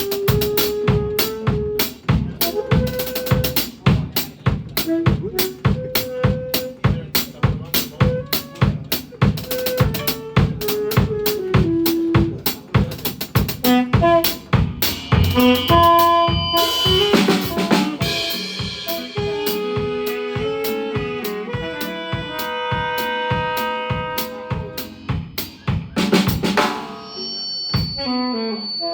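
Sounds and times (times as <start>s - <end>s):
drum kit beat: 0.0s - 27.2s
marimba band playing: 13.4s - 20.3s.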